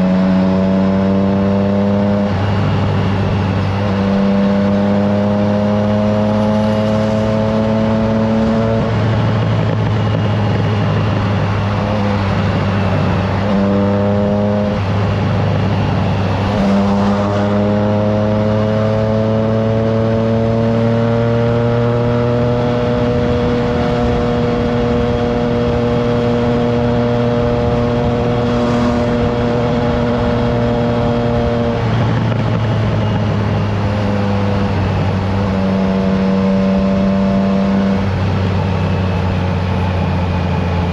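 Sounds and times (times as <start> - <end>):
motorcycle engine running: 0.0 - 40.9
wind on microphone: 22.4 - 40.9.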